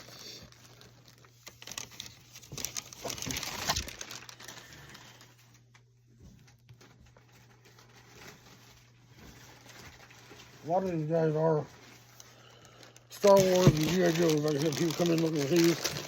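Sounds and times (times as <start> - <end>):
packaging crinkling and rustling: 0.0 - 16.0
packaging taps and rustles: 13.1 - 16.0.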